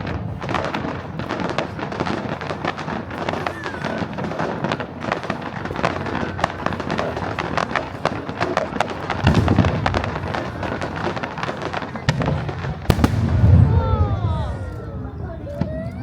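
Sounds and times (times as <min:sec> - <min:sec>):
fireworks crackling pops: 0:00.0 - 0:16.0
heavy low firework boom: 0:09.1 - 0:16.0.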